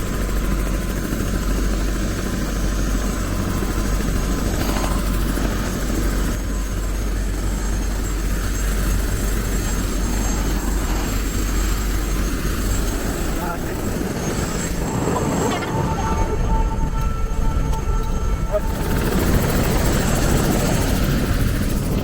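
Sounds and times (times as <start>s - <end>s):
helicopter rotor and engine drone: 0.0s - 22.0s.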